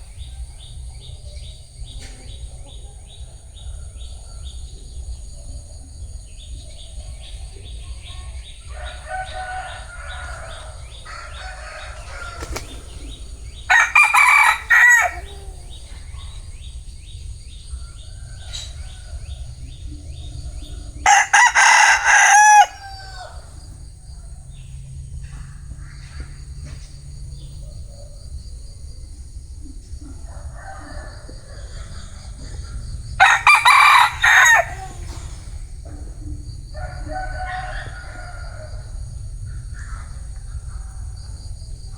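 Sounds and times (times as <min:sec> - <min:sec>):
rooster crowing: 0:08.7 - 0:16.3, 0:21.0 - 0:23.7, 0:30.3 - 0:32.6, 0:33.2 - 0:35.6, 0:36.7 - 0:39.1
soft rooster calls: 0:08.7 - 0:16.3, 0:21.0 - 0:23.6, 0:30.2 - 0:36.1.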